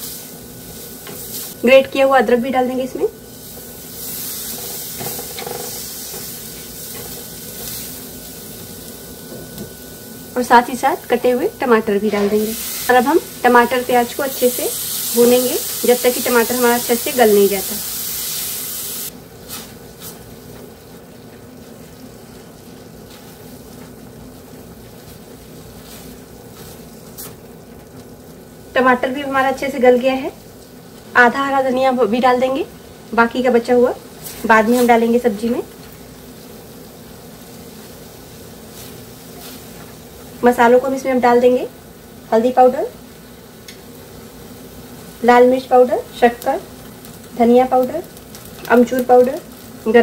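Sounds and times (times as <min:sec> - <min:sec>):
masala sizzling in oil: 0:00.0 - 0:50.0
spatula stirring and scraping: 0:21.6 - 0:27.4.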